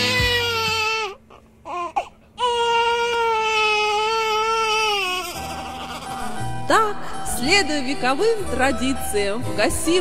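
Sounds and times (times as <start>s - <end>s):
newborn baby crying: 0.0s - 6.4s.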